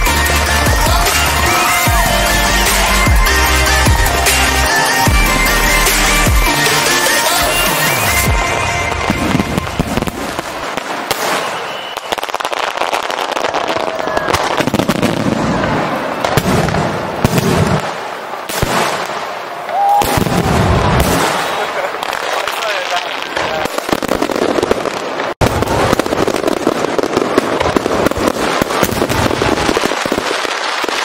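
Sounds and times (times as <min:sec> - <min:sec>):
music: 0:00.0 - 0:10.1
fireworks bursting and crackling: 0:00.0 - 0:31.0.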